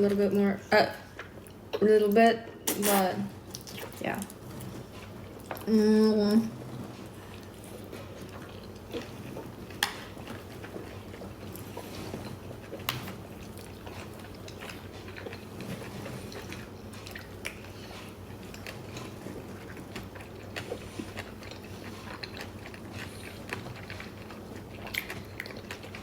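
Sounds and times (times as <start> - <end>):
chewing and biting food: 6.6 - 26.0.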